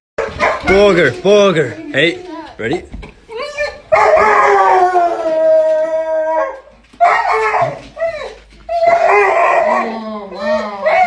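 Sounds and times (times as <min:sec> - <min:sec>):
dog howling: 0:03.7 - 0:11.0.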